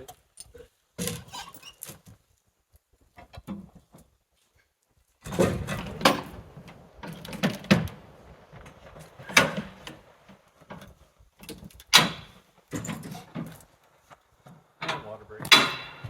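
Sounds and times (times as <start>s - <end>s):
irregular knocks and scrapes: 5.2s - 16.0s
sharp bangs: 15.5s - 16.0s.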